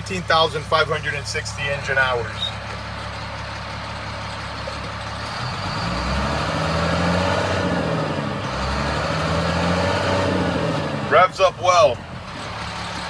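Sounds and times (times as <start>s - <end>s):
diesel truck engine revving: 0.0s - 13.0s.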